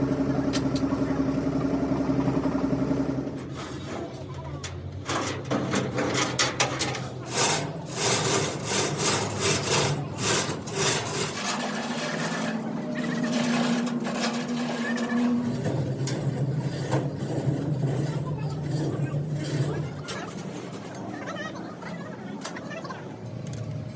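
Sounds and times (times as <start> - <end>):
hand tool rasping: 6.8 - 19.7.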